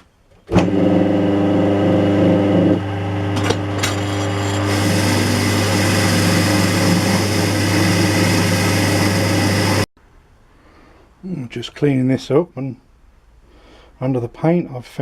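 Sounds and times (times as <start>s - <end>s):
electric power tool humming: 0.5s - 9.9s.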